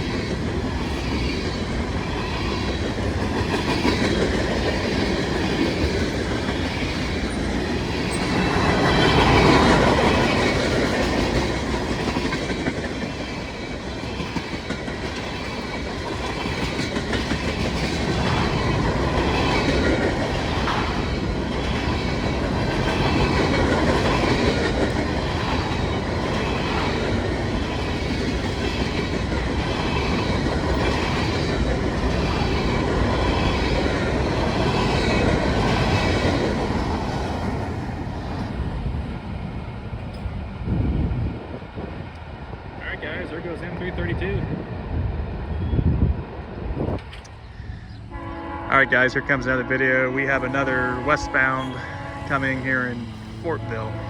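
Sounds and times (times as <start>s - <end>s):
train wheels rolling over rails: 0.0s - 48.2s.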